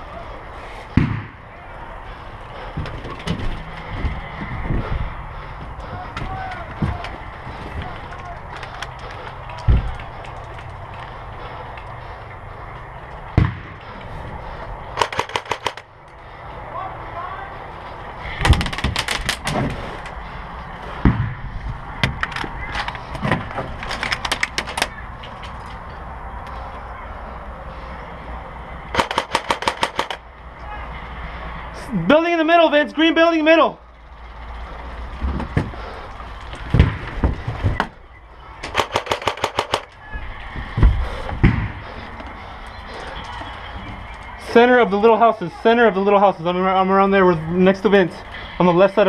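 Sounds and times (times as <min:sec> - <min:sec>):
heavier thumps: 0:00.9 - 0:01.4, 0:13.3 - 0:13.9, 0:20.9 - 0:22.3, 0:36.6 - 0:38.0, 0:40.5 - 0:42.3
dull low thumps: 0:02.6 - 0:08.0, 0:40.2 - 0:42.6
airsoft guns firing bursts: 0:15.0 - 0:15.9, 0:28.9 - 0:30.2, 0:38.6 - 0:40.0.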